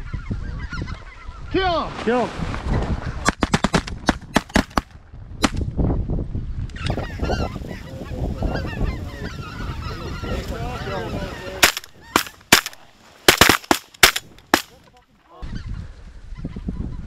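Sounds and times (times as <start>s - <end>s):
shotgun blasts: 3.3s - 5.6s, 11.6s - 14.8s
geese honking: 6.8s - 12.8s.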